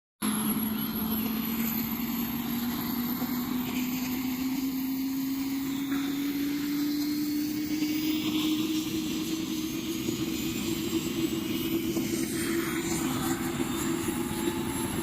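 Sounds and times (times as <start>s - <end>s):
helicopter engine spooling up: 0.2s - 15.0s.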